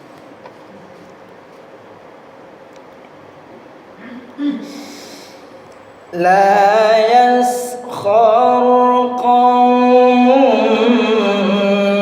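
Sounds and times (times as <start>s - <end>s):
man reciting melodically: 6.1s - 12.0s.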